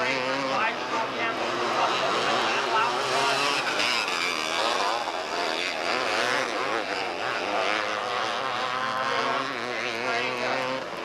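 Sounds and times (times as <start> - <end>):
race car engines buzzing: 0.0 - 11.0.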